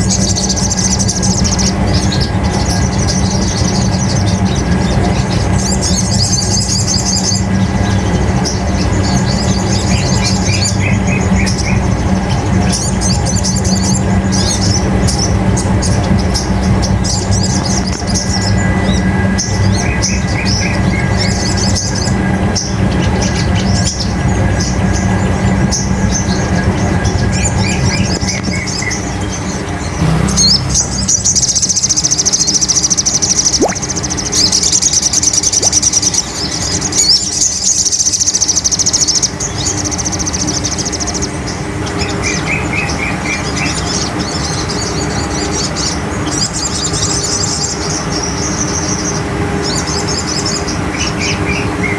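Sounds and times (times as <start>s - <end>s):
bird chirping and trilling: 0.0s - 51.9s
low hum: 30.0s - 32.8s.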